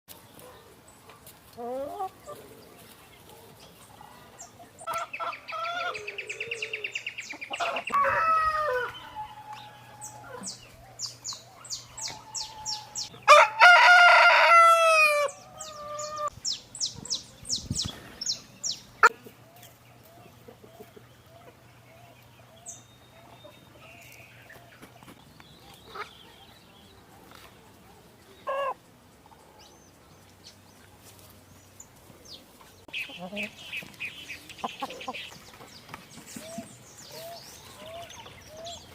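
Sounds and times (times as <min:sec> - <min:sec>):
chickens clucking and calling: 0:00.1 - 0:38.9
rooster crowing: 0:07.6 - 0:10.5, 0:12.1 - 0:16.3.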